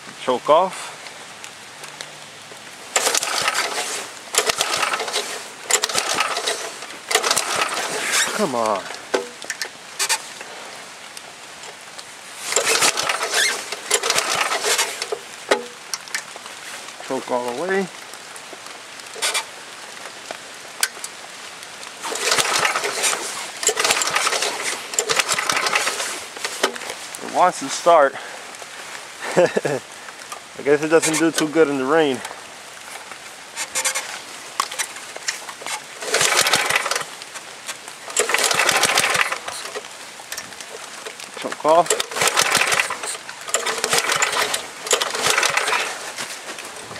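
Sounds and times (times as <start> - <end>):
faint rain patter: 0.0 - 46.9
small engine cranking and sputtering: 2.8 - 10.5, 12.4 - 16.3, 19.0 - 19.6, 21.9 - 27.2, 30.6 - 46.9.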